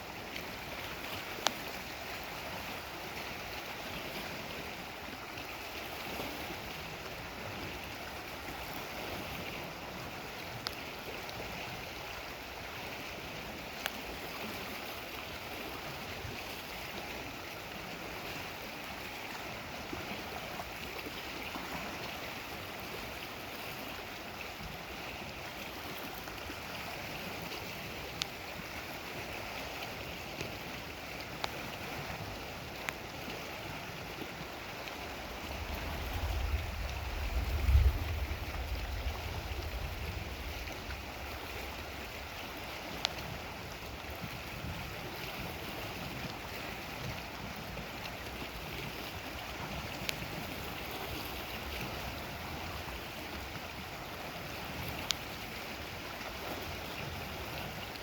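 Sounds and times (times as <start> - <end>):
lake water washing along shore: 0.0 - 58.0
distant thunder rumble: 35.3 - 42.1.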